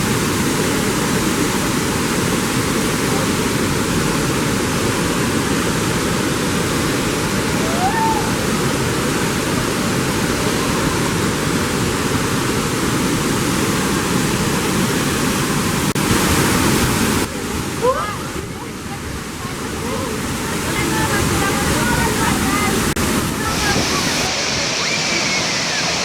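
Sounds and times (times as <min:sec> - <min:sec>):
waterfall roaring: 0:00.0 - 0:26.0
rising whistle: 0:23.6 - 0:26.0.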